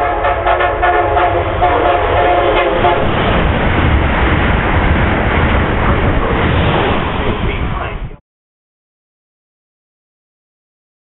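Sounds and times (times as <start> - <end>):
train horn chord: 0.0 - 3.2
train rushing past: 0.0 - 8.2.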